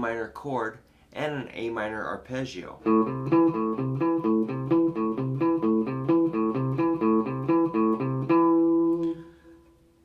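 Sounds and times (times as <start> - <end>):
acoustic guitar arpeggio: 2.9 - 9.2.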